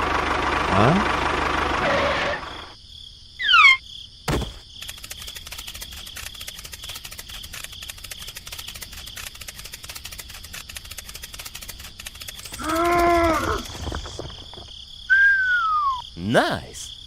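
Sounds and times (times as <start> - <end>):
high squeak falling in pitch: 3.4 - 3.8
insect-like chirring: 3.4 - 17.0.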